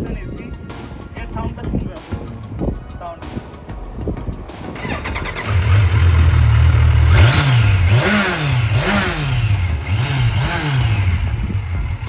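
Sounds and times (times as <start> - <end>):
motorcycle engine revving: 3.8 - 12.0.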